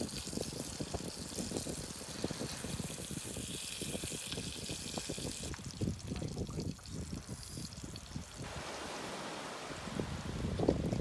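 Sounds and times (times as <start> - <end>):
water splashing and lapping: 6.9 - 11.0.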